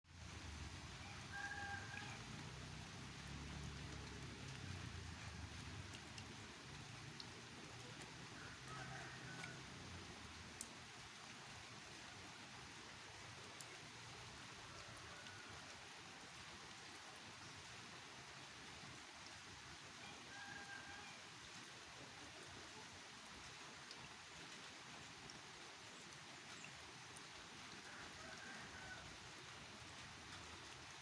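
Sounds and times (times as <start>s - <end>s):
faint rain falling: 0.0s - 31.0s
sharp drips: 1.8s - 11.1s.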